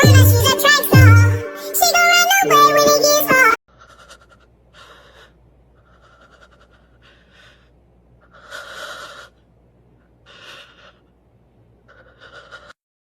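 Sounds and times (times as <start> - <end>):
person breathing heavily: 3.7 - 12.8.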